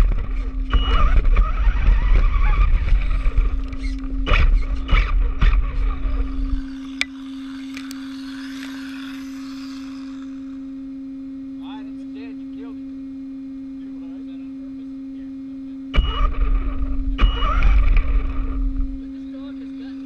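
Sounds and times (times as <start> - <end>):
rc car motor and tyres rumbling: 0.0 - 10.8, 16.0 - 20.0
electronic motor whine: 0.0 - 20.0
high chirping whines: 0.0 - 20.0.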